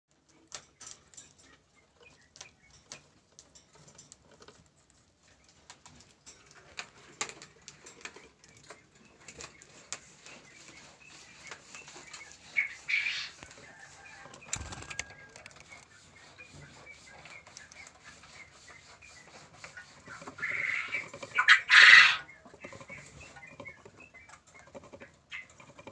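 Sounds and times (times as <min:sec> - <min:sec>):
birds flapping wings: 0:14.4 - 0:15.6
sharp clicks: 0:14.4 - 0:15.9.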